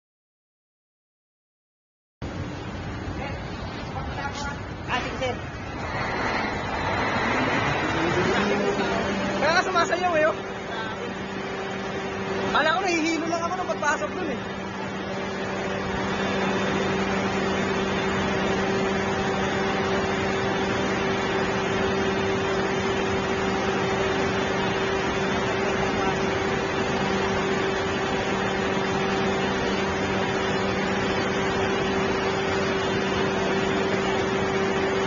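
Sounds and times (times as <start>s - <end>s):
machine hum: 2.2s - 35.0s
loud even hiss: 4.4s - 9.4s.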